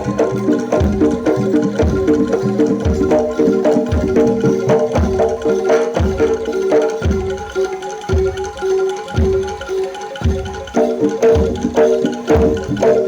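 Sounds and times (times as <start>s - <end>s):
deep bass drum beats: 0.0s - 7.5s.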